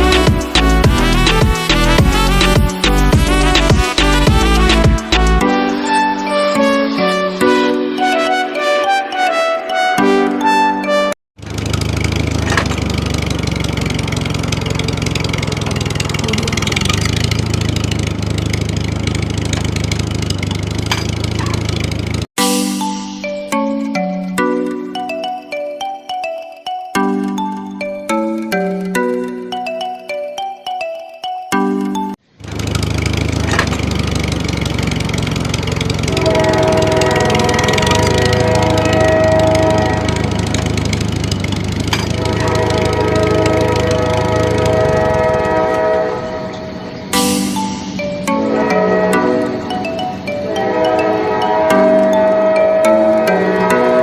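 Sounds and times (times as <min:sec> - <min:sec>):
small motor running: 0:11.4 - 0:22.1, 0:32.4 - 0:45.4
engine humming steadily: 0:11.4 - 0:22.3, 0:32.4 - 0:51.6
held steady tones: 0:11.5 - 0:22.3, 0:33.2 - 0:54.0.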